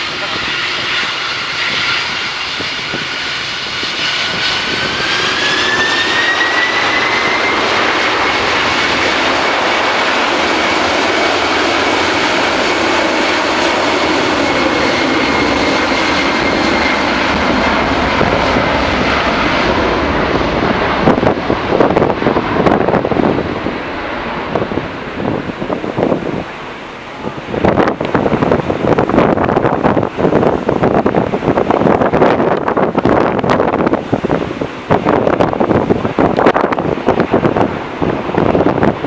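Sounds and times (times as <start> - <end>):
jet engines spooling up: 0.0 - 39.0
wind gusts on microphone: 0.0 - 39.0.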